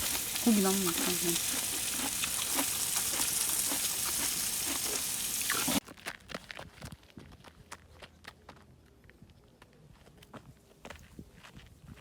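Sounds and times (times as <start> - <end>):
meat sizzling in a pan: 0.0 - 5.8.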